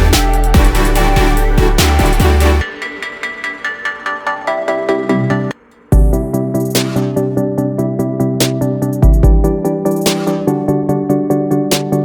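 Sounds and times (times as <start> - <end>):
repeated synth notes: 0.0 - 6.5.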